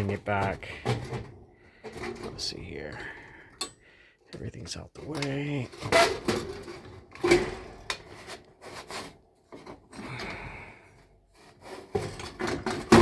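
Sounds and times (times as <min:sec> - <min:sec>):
sheet metal scraping: 0:05.0 - 0:10.7.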